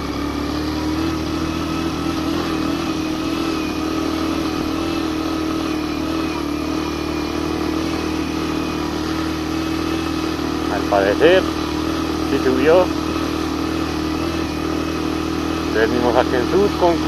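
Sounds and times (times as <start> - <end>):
motorcycle engine under load: 0.0 - 17.0.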